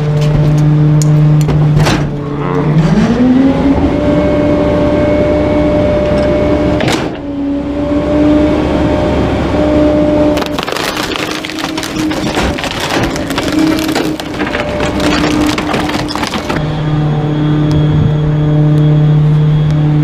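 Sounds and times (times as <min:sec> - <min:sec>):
diesel engine revving up: 0:02.0 - 0:10.6.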